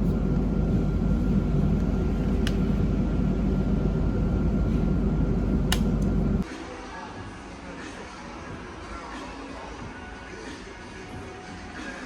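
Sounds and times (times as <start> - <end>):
moving vehicle rumble: 0.0 - 6.4.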